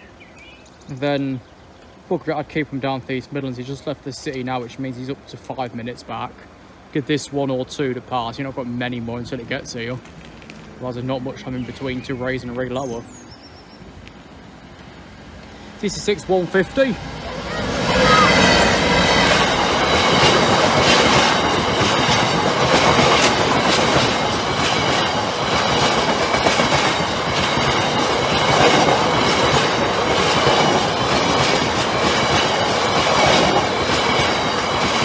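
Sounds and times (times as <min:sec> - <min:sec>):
train wheels clattering over rails: 0:13.6 - 0:35.0
high wheel squeal: 0:15.7 - 0:29.9.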